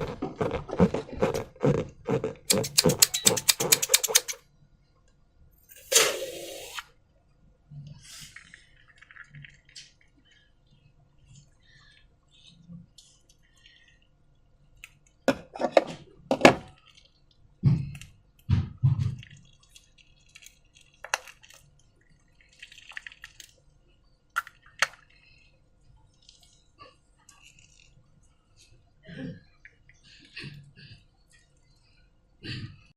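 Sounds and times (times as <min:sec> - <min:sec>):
soft low slime squelches: 0:07.1 - 0:15.2, 0:16.7 - 0:32.5.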